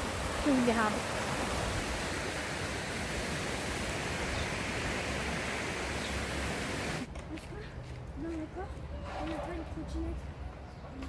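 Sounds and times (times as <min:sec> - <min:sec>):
mountain stream rushing: 0:00.0 - 0:07.1.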